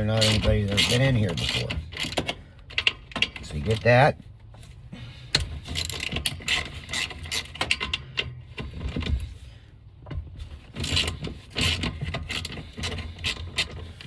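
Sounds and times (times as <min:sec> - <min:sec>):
ratchet and hand tools clicking: 0:00.0 - 0:03.9, 0:05.3 - 0:09.2, 0:10.8 - 0:14.0.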